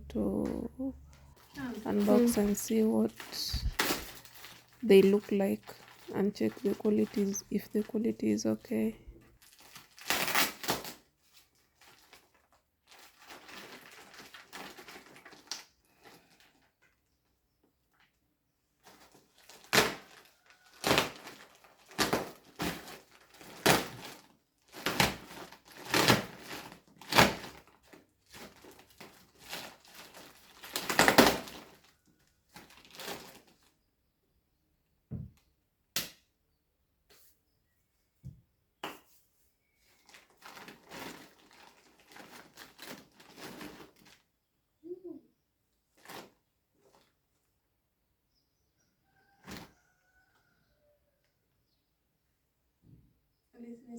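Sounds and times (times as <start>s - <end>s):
packaging ripping and crinkling: 1.4s - 7.4s, 9.4s - 16.7s, 18.8s - 33.7s, 40.0s - 44.3s.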